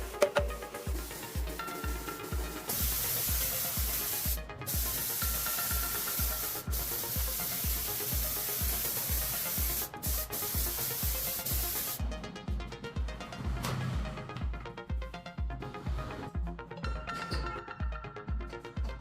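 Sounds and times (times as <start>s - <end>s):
spray gun hissing: 0.0s - 12.0s
music with bass beat: 0.0s - 19.0s.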